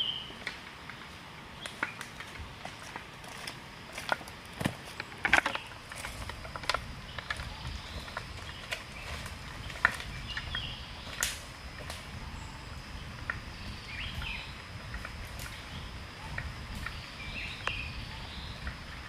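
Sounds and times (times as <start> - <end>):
bird calls: 0.0 - 0.4, 4.9 - 11.3, 12.0 - 19.0
high insect drone: 0.0 - 19.0.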